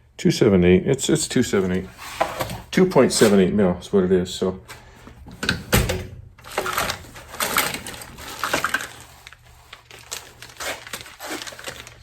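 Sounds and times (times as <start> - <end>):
rummaging through small parts: 5.4 - 12.0.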